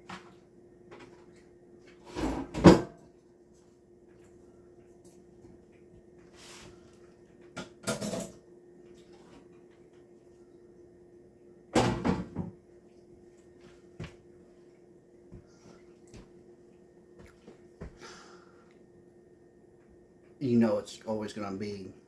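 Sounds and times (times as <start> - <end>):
steady low hum: 0.0 - 22.0
kitchen clatter: 7.6 - 8.4.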